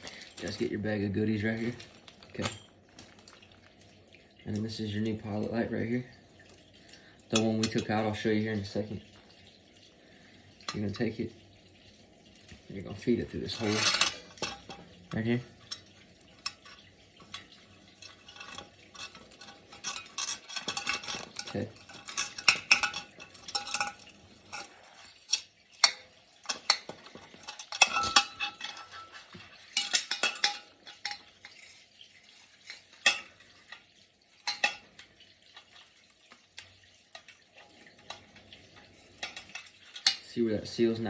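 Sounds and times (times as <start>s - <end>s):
small metal parts clinking and rattling: 1.5s - 3.4s, 13.5s - 14.9s, 15.6s - 31.8s.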